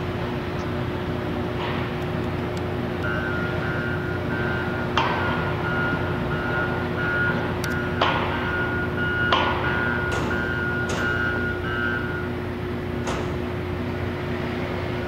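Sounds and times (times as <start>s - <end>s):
construction machinery engine drone: 0.0s - 15.0s
backup warning beeper: 3.0s - 12.5s.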